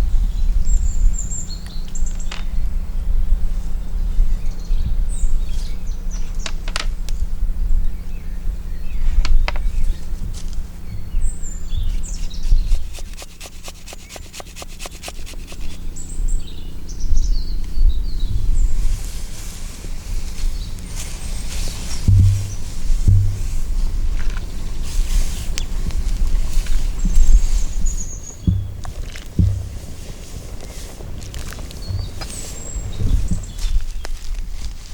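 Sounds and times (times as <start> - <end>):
songbirds chirping: 0.0 - 34.9
quick run of taps: 11.8 - 15.8, 28.4 - 34.2
steady low rumble: 15.8 - 34.7.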